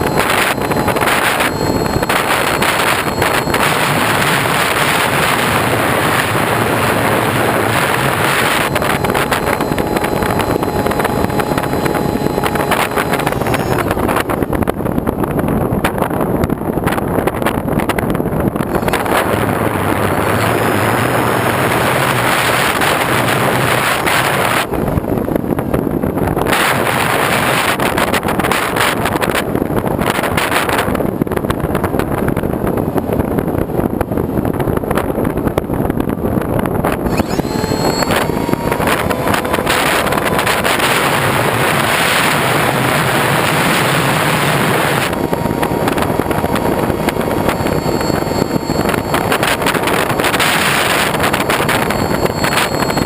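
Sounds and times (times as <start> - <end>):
wind buffeting microphone: 0.0 - 53.0
vehicle running: 18.6 - 24.8, 37.1 - 53.0.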